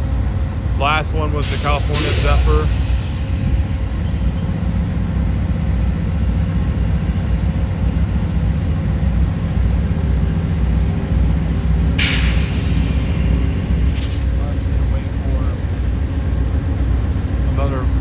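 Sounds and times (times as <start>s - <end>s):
faint engine tones: 0.0s - 18.0s
passenger train rumbling: 0.0s - 18.0s
brief hiss: 1.4s - 3.4s, 12.0s - 14.9s.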